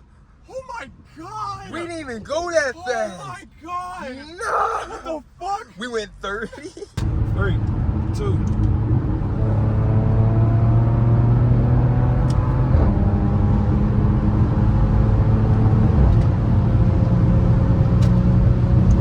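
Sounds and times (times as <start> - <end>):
car engine accelerating: 7.0 - 19.0.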